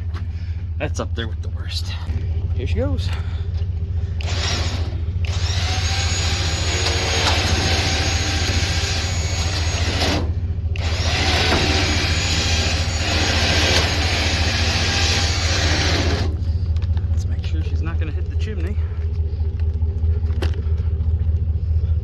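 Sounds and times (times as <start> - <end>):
engine idling hum: 0.0 - 22.0
electric winch motor whirring: 3.9 - 17.1.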